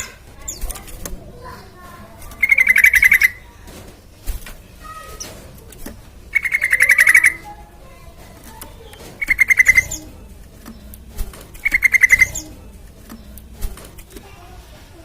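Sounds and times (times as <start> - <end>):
bird chattering call: 2.3 - 3.5, 6.3 - 7.6, 8.8 - 10.1, 11.5 - 12.6.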